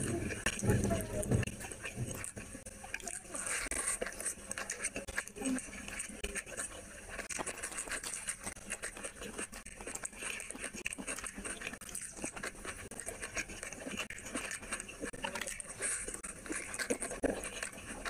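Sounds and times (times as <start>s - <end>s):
chewing with wet clicks: 0.0s - 18.0s.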